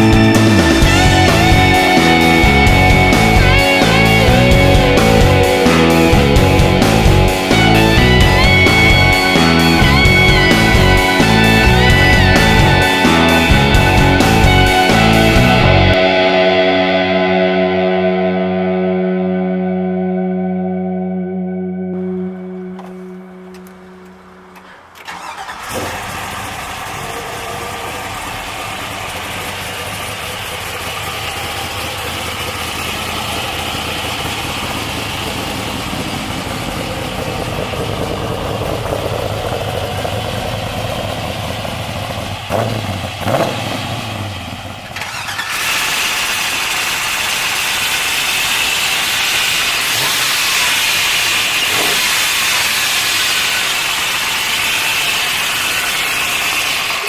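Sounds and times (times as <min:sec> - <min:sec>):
car engine idling and revving: 0:00.0 - 0:18.9, 0:21.6 - 0:57.0
engine hiss: 0:22.0 - 0:57.0.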